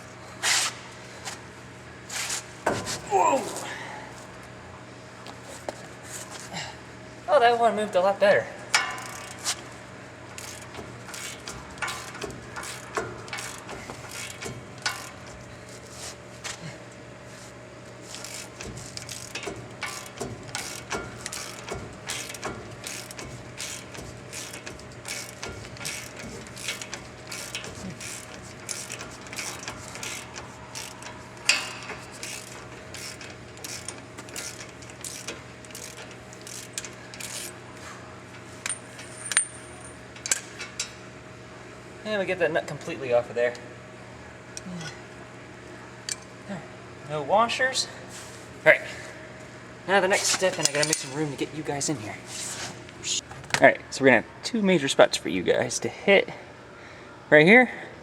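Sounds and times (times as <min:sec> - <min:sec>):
hand ratchet clicking: 0:08.8 - 0:09.6, 0:10.4 - 0:15.4, 0:18.1 - 0:37.6.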